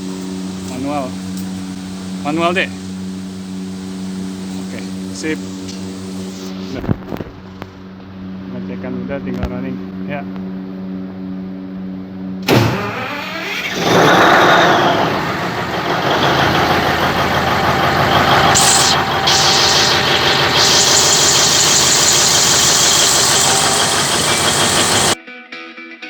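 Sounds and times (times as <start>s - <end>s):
diesel generator starting and running: 0.0s - 6.8s, 12.4s - 25.2s.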